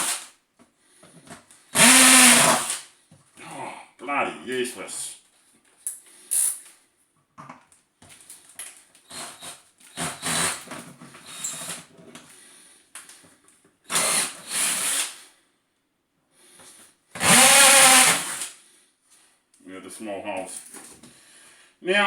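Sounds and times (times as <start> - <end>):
hammer drill boring plastic: 1.8 - 2.8, 9.1 - 11.8, 13.9 - 15.2, 17.2 - 18.5.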